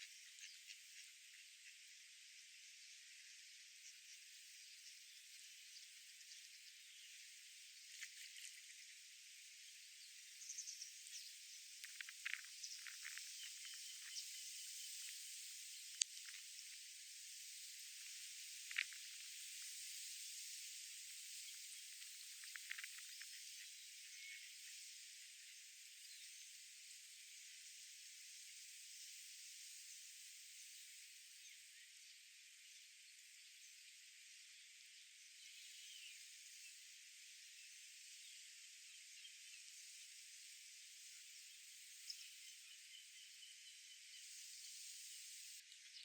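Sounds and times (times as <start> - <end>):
steady high hiss: 9.7 - 45.7.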